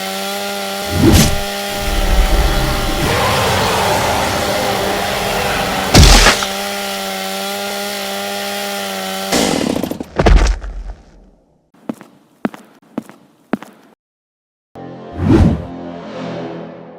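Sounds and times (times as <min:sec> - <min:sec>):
chainsaw running: 0:00.0 - 0:10.1
loud crash: 0:01.0 - 0:06.6.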